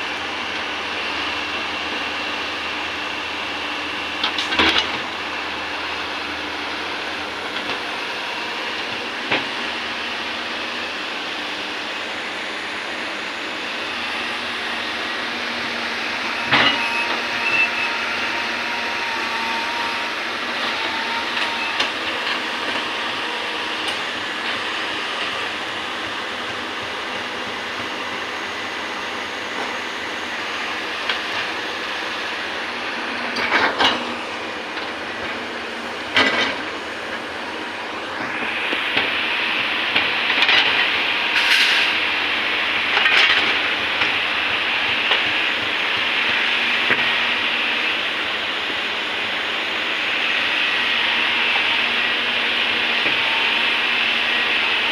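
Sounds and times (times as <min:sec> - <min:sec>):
excavator engine running: 0:00.0 - 0:54.9.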